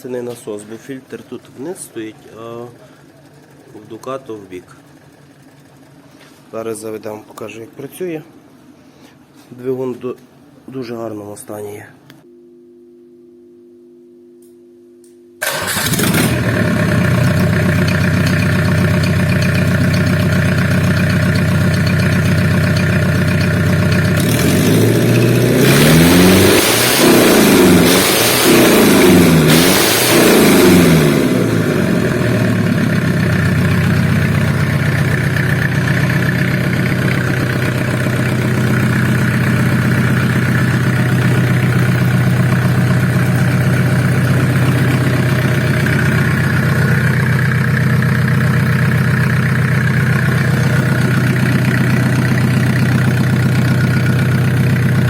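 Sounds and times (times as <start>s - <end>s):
diesel engine idling and revving: 15.4s - 55.0s.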